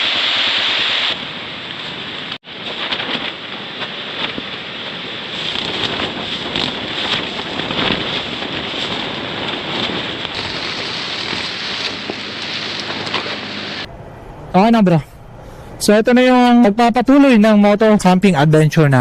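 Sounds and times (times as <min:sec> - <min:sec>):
heavy rain falling: 0:00.0 - 0:13.9.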